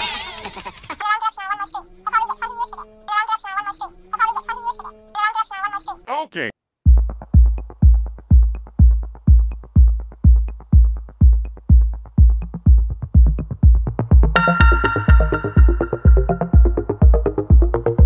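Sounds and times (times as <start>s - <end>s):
kick-drum beat: 6.8s - 18.0s
sustained synth chord: 14.4s - 17.8s.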